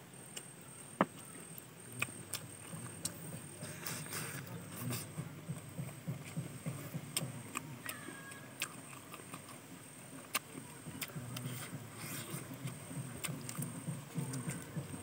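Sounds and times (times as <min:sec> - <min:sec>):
chewing fried chicken: 0:00.2 - 0:15.0.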